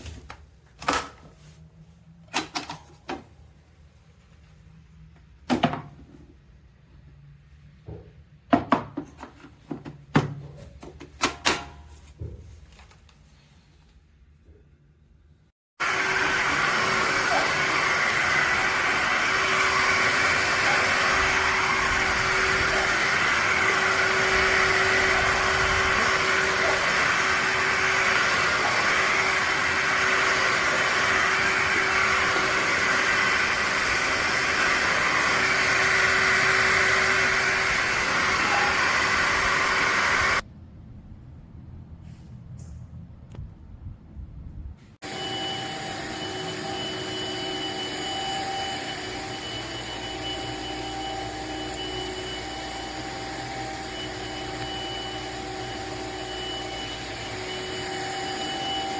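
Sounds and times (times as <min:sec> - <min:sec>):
wet-dry vacuum mop running: 0:15.8 - 0:40.4, 0:45.0 - 0:58.9.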